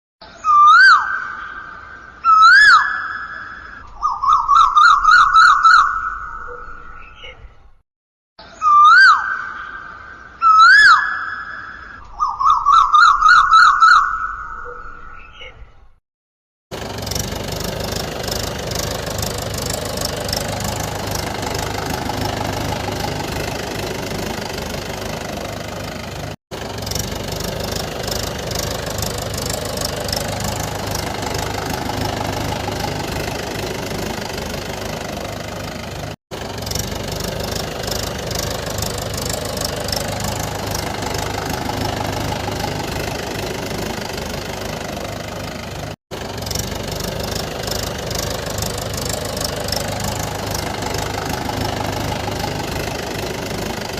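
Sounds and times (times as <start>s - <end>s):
engine running steadily: 16.7s - 53.9s.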